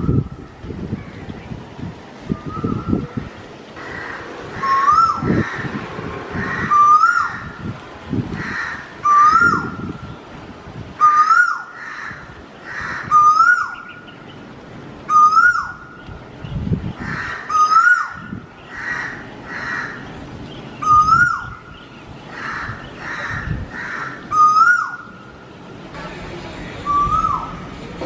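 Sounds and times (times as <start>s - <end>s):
loud whistled bird call: 2.4s - 3.0s, 4.6s - 5.3s, 6.6s - 7.4s, 15.1s - 15.8s, 20.8s - 21.6s, 24.3s - 25.1s, 26.8s - 27.6s
hoarse bird calls: 2.4s - 7.6s, 15.1s - 25.3s.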